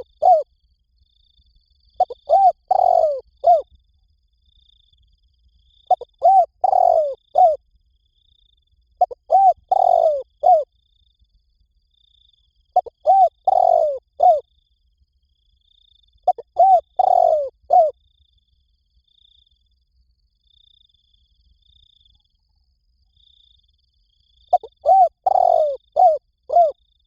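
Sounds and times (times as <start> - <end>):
dove cooing: 0.0 - 0.5, 2.0 - 3.7, 5.9 - 7.6, 9.0 - 10.7, 12.8 - 14.4, 16.3 - 17.9, 24.5 - 26.8.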